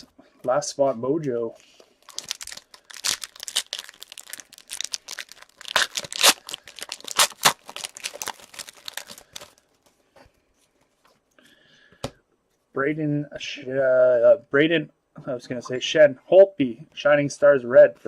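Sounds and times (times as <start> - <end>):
wrapper tearing and crinkling: 2.0 - 9.7.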